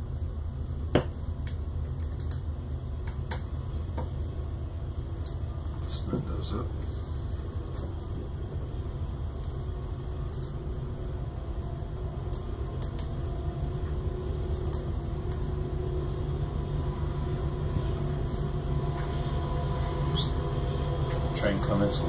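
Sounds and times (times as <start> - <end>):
train rumbling past: 4.9 - 22.0.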